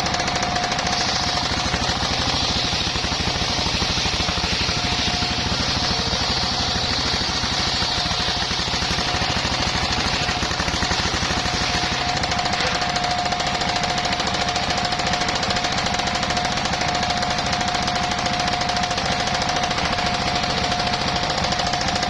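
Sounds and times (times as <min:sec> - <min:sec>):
saw blade hissing through log: 0:00.0 - 0:13.0
sawmill engine running: 0:00.0 - 0:22.0.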